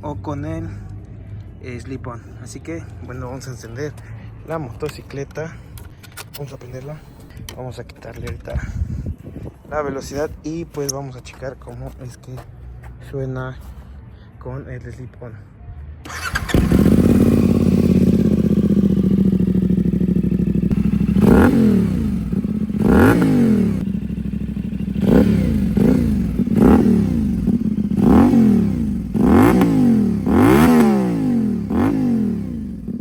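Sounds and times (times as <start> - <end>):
motorcycle engine idling and revving: 16.1 - 33.0.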